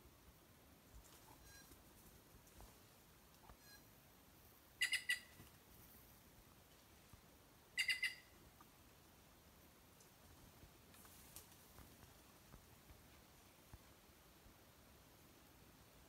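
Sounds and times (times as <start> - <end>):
bird calling: 4.8 - 5.4, 7.8 - 8.4.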